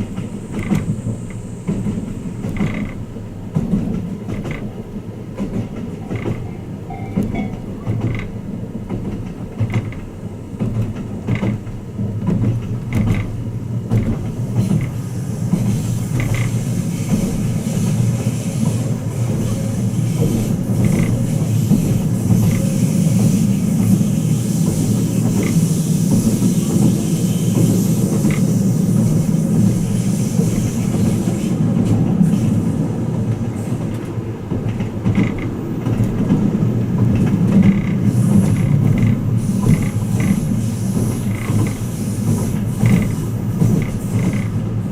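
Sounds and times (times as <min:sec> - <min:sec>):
train running rumble: 0:00.0 - 0:44.9
wheels clicking over rail joints: 0:00.0 - 0:44.9
high hiss: 0:14.4 - 0:34.0, 0:38.0 - 0:44.5.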